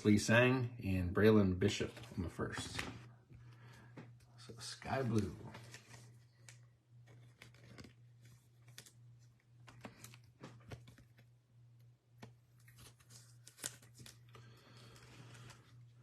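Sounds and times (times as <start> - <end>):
low electrical hum: 0.0 - 16.0
cards clicking and rustling: 5.0 - 16.0.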